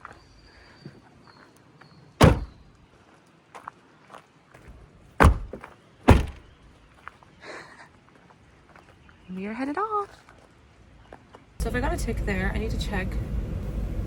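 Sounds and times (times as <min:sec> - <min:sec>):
car doors slamming shut: 0:02.2 - 0:02.6, 0:05.2 - 0:06.5.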